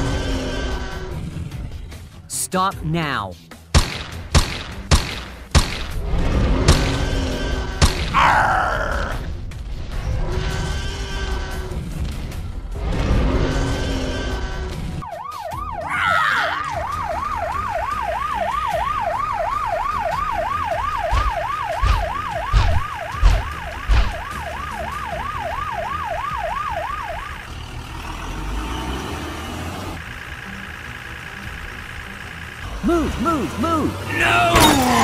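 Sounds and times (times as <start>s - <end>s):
police siren yelping: 15.0s - 27.6s.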